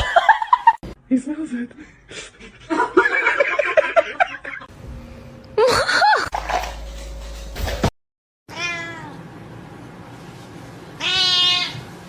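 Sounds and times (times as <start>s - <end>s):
cat meowing: 8.5s - 9.2s, 11.0s - 11.8s.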